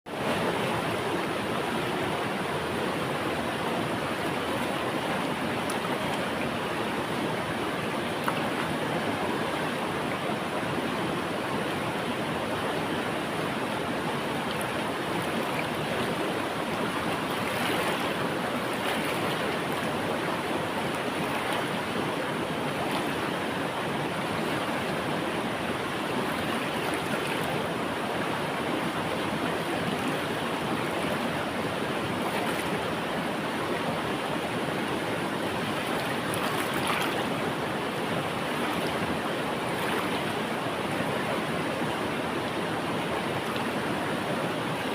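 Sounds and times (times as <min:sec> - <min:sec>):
river water flowing over rocks: 0:00.1 - 0:44.9
small water splashes: 0:03.8 - 0:09.7, 0:12.6 - 0:27.8, 0:28.7 - 0:41.4.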